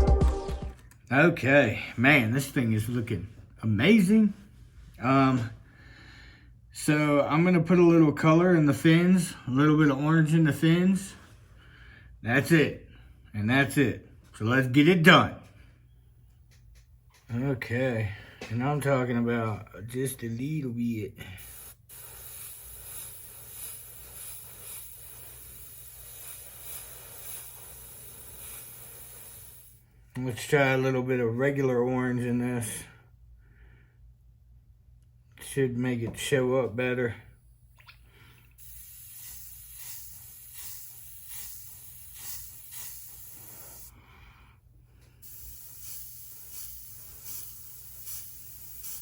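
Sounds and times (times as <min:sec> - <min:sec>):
airbrush hissing: 0:21.2 - 0:29.9, 0:37.4 - 0:44.3, 0:45.0 - 0:49.0.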